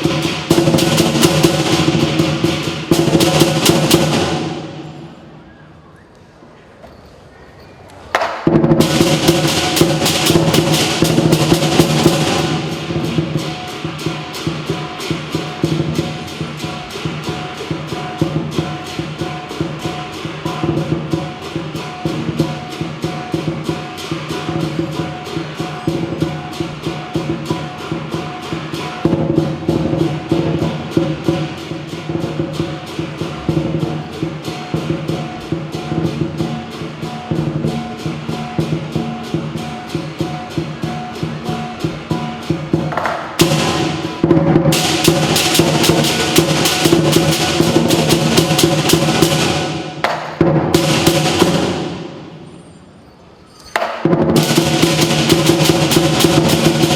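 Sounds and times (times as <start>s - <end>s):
big drum beating: 0.0s - 5.4s, 8.4s - 52.4s, 54.0s - 56.9s
cymbals crashing: 0.0s - 5.5s, 8.3s - 56.9s
gong: 8.8s - 50.0s.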